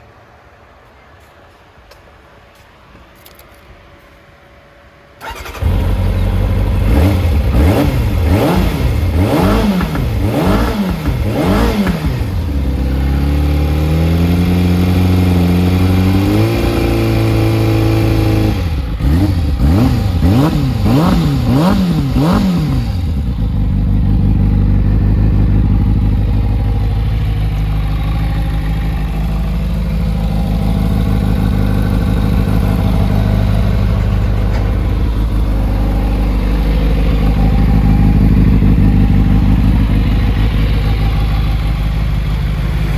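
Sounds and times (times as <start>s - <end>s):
motorcycle engine revving and idling: 5.2s - 42.9s.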